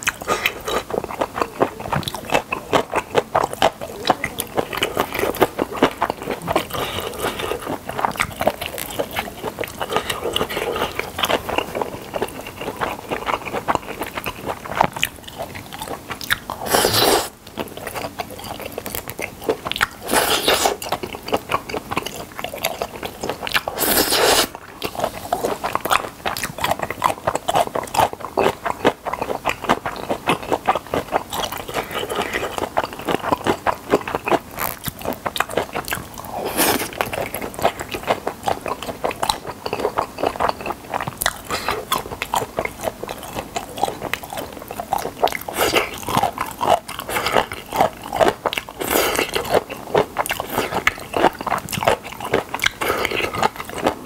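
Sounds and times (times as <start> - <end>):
crunchy chewing and biting: 0.0 - 54.0
wet mouth sounds: 0.0 - 54.0.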